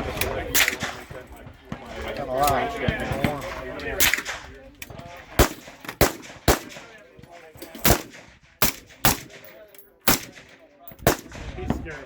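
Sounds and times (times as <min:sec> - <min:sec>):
faint voices: 0:00.0 - 0:12.0
gunshots with echo: 0:00.1 - 0:01.2, 0:05.4 - 0:07.0, 0:07.8 - 0:09.5, 0:10.1 - 0:12.0.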